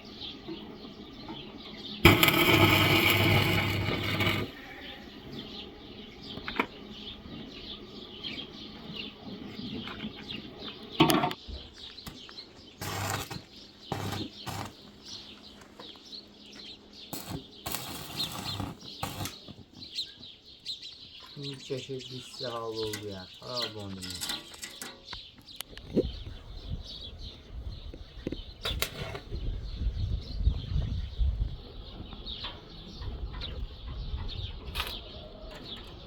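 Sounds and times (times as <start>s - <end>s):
small birds chirping: 0.0s - 2.7s, 3.6s - 36.0s
short noisy bursts: 17.1s - 19.4s.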